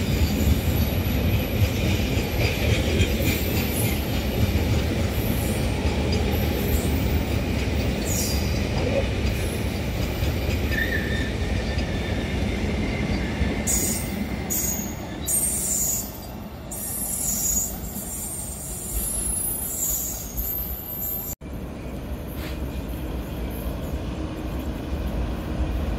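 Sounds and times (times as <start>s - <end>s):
freight train wheels rumbling: 0.0s - 25.9s.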